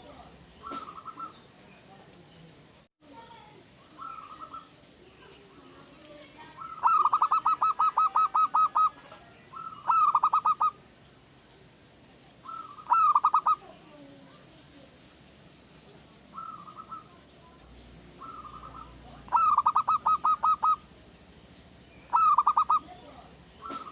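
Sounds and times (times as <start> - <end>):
dove cooing in staccato trills: 0.6 - 1.4, 4.0 - 4.7, 6.6 - 10.8, 12.4 - 13.7, 16.3 - 17.2, 18.1 - 20.9, 22.1 - 23.9.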